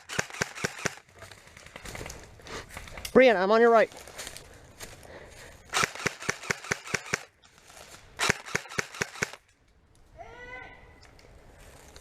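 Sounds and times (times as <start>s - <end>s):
airsoft guns firing: 0.0s - 1.0s, 5.7s - 7.3s, 8.2s - 9.4s.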